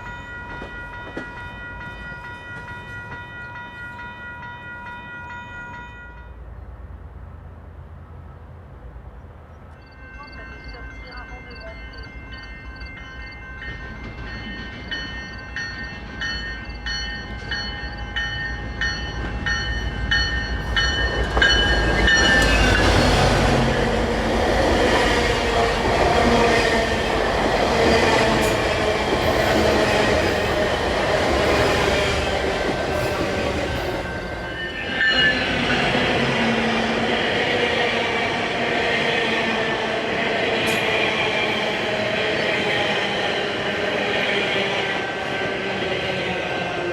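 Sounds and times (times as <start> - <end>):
locomotive bell ringing: 0.0 - 6.5, 9.7 - 24.2, 26.4 - 36.6
train wheels rushing past: 18.2 - 46.9.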